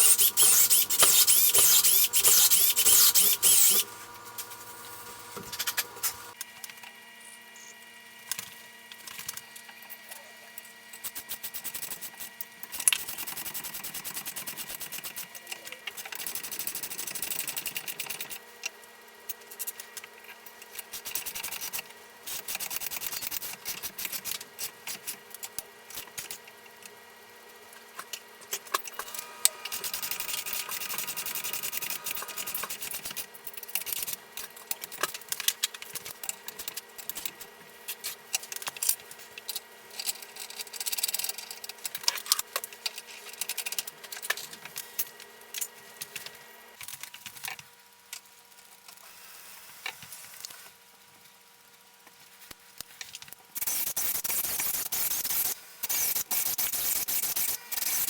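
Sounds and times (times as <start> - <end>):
metal parts ticking and rattling: 0.0 - 3.9, 29.8 - 45.0.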